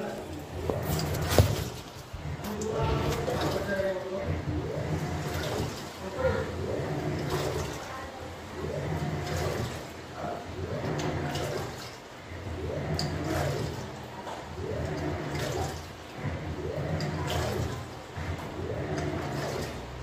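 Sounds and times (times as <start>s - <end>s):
washing machine motor hum: 0.0s - 20.0s
water sloshing: 0.0s - 20.0s.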